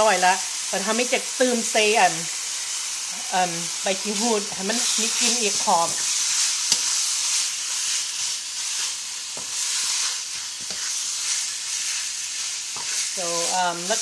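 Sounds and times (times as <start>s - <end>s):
chicken sizzling in a pan: 0.0s - 14.0s
utensil knocking and scraping pan: 9.3s - 11.5s, 12.7s - 13.1s.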